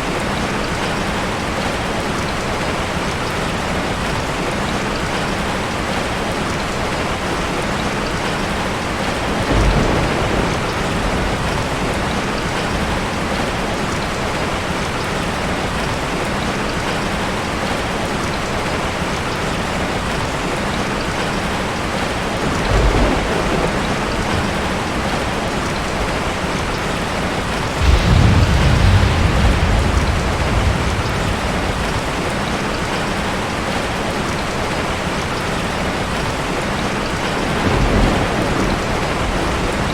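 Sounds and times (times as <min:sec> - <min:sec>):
steady rain: 0:00.0 - 0:39.9
thunder rolling: 0:09.3 - 0:13.4, 0:22.4 - 0:33.9, 0:37.4 - 0:39.9.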